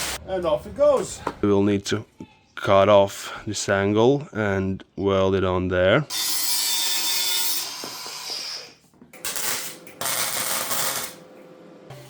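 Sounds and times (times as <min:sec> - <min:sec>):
angle grinder cutting steel: 0:06.1 - 0:11.2.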